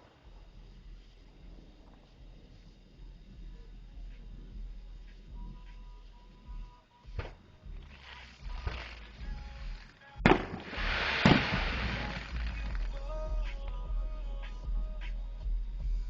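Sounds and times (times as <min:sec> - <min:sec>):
fireworks hiss: 0:00.0 - 0:13.7
fireworks popping: 0:00.0 - 0:13.8
fireworks bangs: 0:10.2 - 0:13.1.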